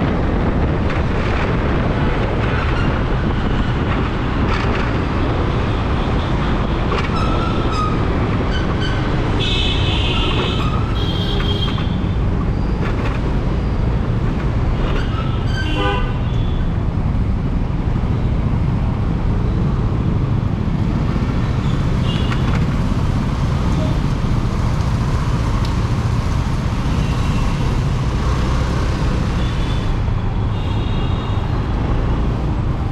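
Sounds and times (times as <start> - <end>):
road and wind rumble: 0.0 - 32.9
vehicle horns honking: 8.8 - 12.0, 15.5 - 16.6.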